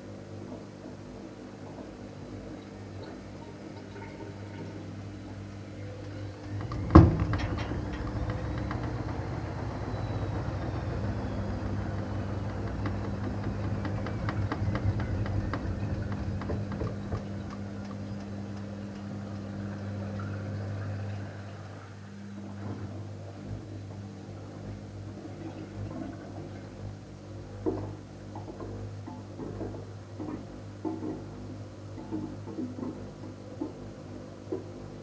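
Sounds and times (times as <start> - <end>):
washing machine hum: 0.0 - 35.0
washing machine clunk: 5.7 - 19.7
clicks and rattles: 6.0 - 19.5.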